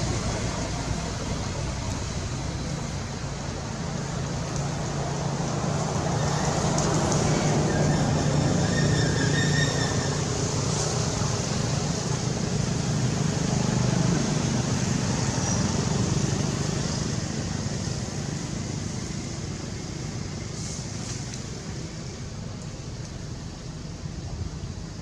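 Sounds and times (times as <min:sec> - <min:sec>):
motor vehicle running: 0:00.0 - 0:25.0.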